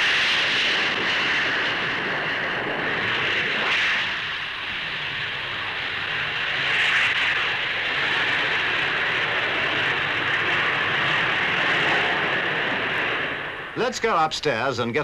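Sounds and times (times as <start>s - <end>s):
jet engines at takeoff power: 0.0s - 15.0s.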